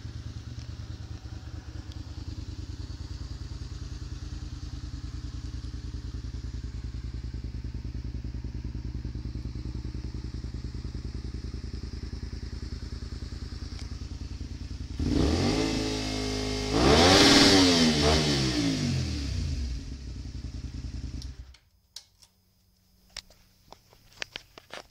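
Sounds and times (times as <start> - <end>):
engine ticking: 0.0 - 15.4
motorcycle engine idling and revving: 0.0 - 21.7.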